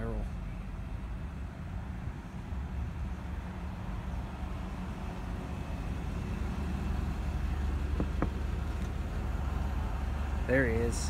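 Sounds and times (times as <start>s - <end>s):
car engine idling: 0.0s - 11.0s
taps on car window: 7.9s - 8.9s.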